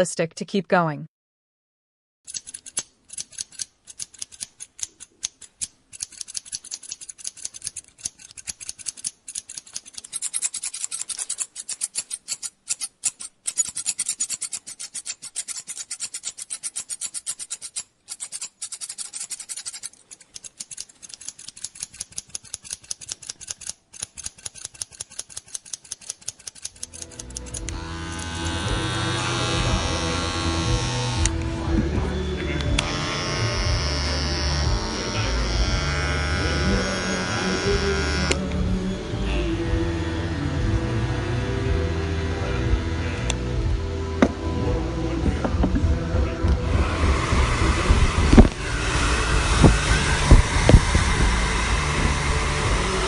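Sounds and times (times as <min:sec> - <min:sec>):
scissors snipping hair: 0:02.3 - 0:31.5
electric hair clippers buzzing: 0:26.8 - 0:38.9, 0:46.6 - 0:53.0.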